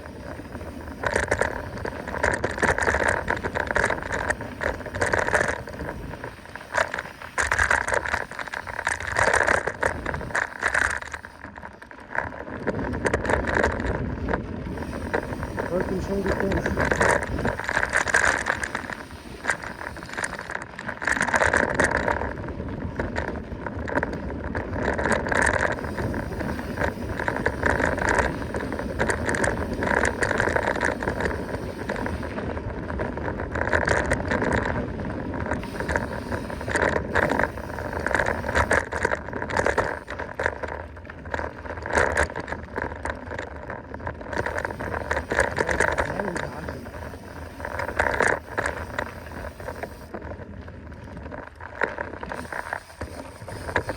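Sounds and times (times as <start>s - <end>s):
bike rattling over bumps: 0.0s - 53.9s
bike tyres on dirt: 0.0s - 53.9s
wind rushing over microphone: 12.4s - 53.9s.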